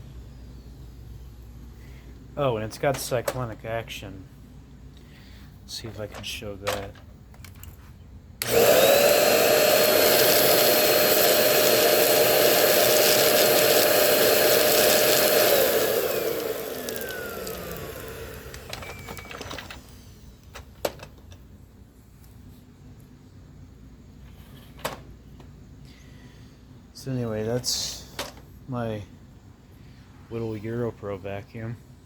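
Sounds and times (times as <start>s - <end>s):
stick vacuum whining: 8.4s - 20.0s.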